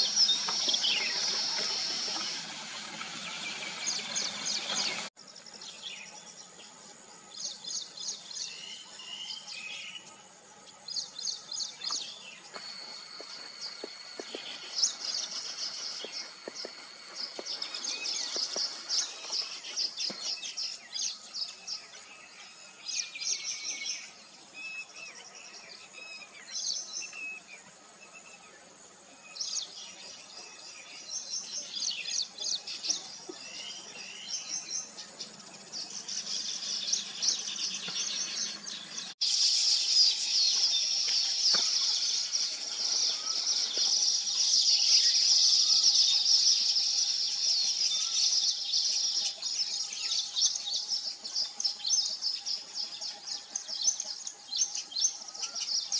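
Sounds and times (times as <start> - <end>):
weaver birds chattering: 0.0 - 5.2, 11.0 - 21.8, 31.0 - 55.9.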